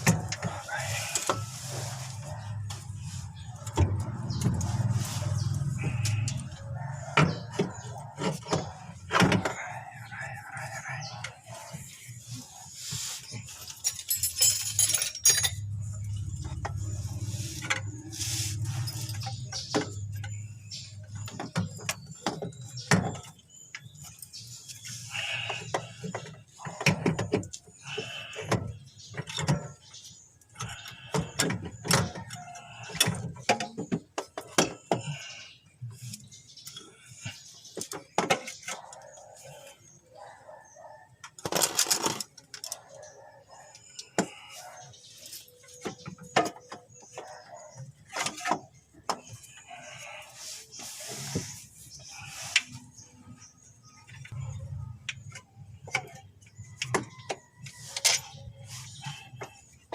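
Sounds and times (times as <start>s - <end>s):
hand tools clinking on metal: 13.4s - 16.7s.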